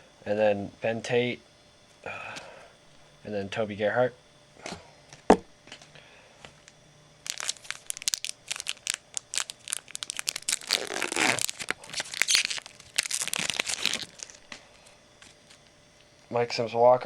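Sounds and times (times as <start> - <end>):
foil wrapper tearing and crinkling: 7.2 - 14.5.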